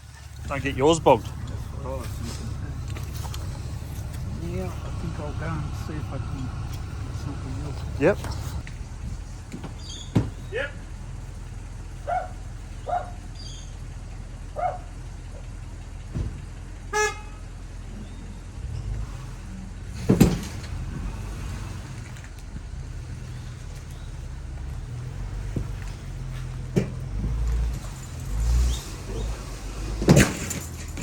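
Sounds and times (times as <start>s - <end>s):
car engine idling: 0.0s - 31.0s
car horn toot: 16.9s - 17.6s
loud clunk: 19.9s - 22.2s, 25.3s - 31.0s.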